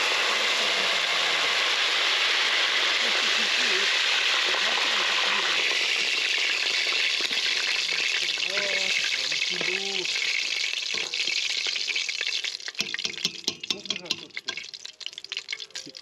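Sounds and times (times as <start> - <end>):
pastries sizzling in hot oil: 0.0 - 16.0
metal tongs clicking on pot: 12.8 - 14.7.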